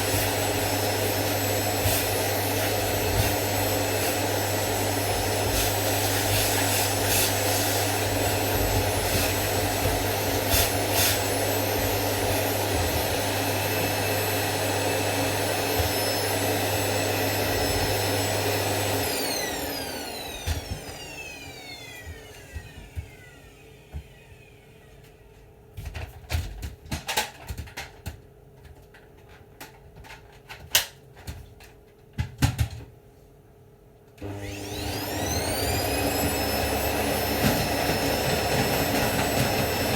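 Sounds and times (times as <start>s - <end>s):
vacuum cleaner running: 0.0s - 25.5s, 34.2s - 39.9s.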